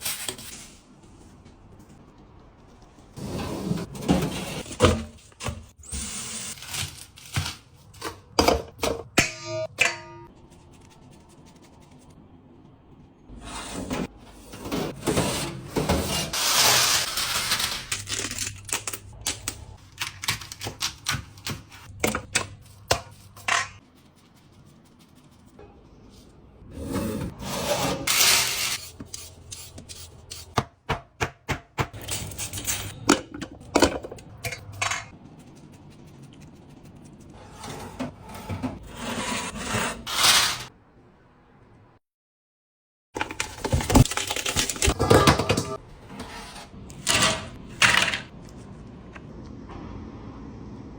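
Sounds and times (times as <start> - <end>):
scraping and rubbing of food: 21.9 - 26.4, 34.6 - 40.7.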